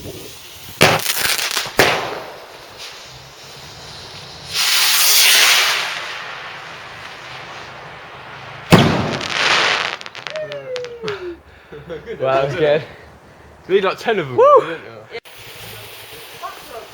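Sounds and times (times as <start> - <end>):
firework whooshing hiss: 0.0 - 11.1, 15.3 - 16.9
hissing crackle: 0.0 - 11.1, 15.3 - 16.9
firework bang: 0.7 - 3.2, 3.8 - 11.2.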